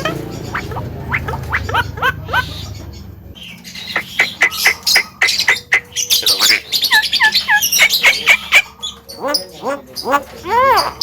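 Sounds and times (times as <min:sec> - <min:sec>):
bird whistles and harsh squawks: 0:03.4 - 0:11.0.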